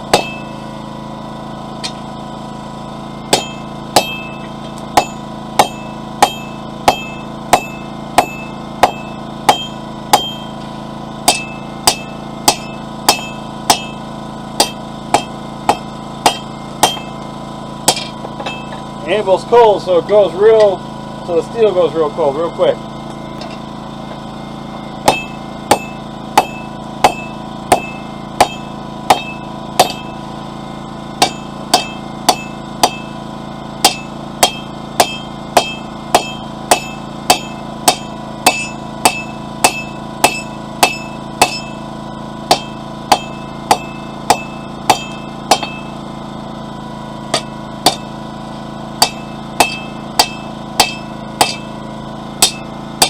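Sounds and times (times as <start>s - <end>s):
hammer striking steel on anvil: 0.0s - 0.6s, 3.3s - 17.2s, 17.8s - 18.9s, 20.5s - 20.8s, 25.0s - 30.2s, 31.2s - 33.2s, 33.8s - 46.0s, 47.3s - 48.2s, 49.0s - 51.8s, 52.4s - 53.0s
generator humming: 0.0s - 53.0s.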